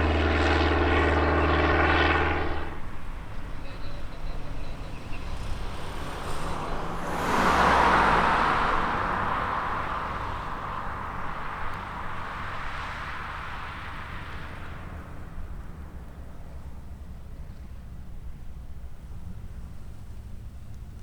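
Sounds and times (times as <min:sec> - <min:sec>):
steady low rumble: 0:00.0 - 0:05.2
vehicle passing by: 0:00.0 - 0:17.6.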